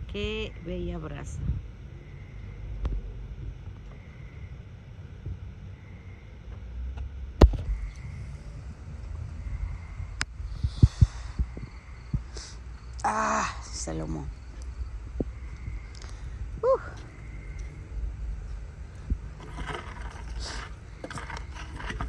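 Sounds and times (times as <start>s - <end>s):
wind rumble on microphone: 0.0s - 5.9s, 7.0s - 12.8s, 14.3s - 22.0s
embers popping: 19.0s - 22.0s.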